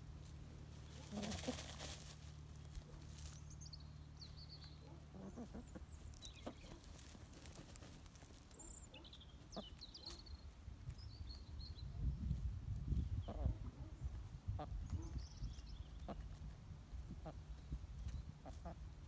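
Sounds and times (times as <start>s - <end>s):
faint high bird chirps: 8.5s - 14.1s.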